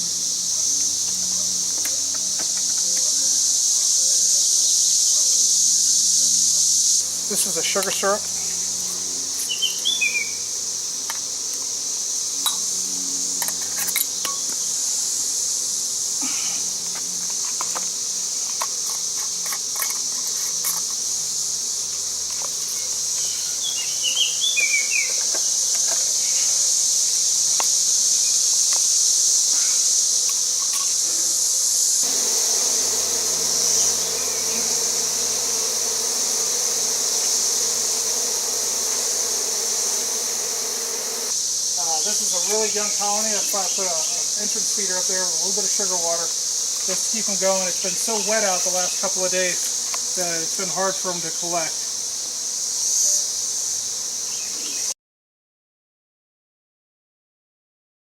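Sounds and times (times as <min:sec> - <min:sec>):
honey bees buzzing: 0:00.0 - 0:54.9
high-pitched insect trill: 0:00.0 - 0:55.0
bird chirping: 0:09.4 - 0:10.4, 0:22.8 - 0:25.4, 0:32.2 - 0:36.2.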